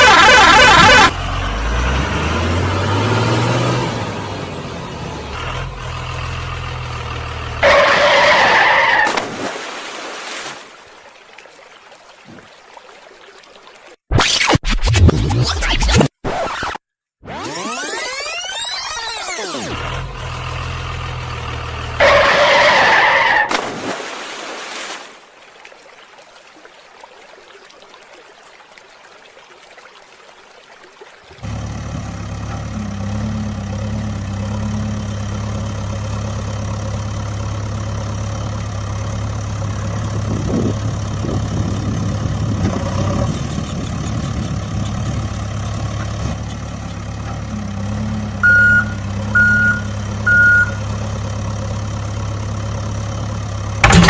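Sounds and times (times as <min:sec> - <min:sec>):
vehicle engine humming: 0:00.0 - 0:09.0, 0:19.6 - 0:23.4, 0:31.4 - 0:54.0
short high beeps: 0:48.4 - 0:50.8.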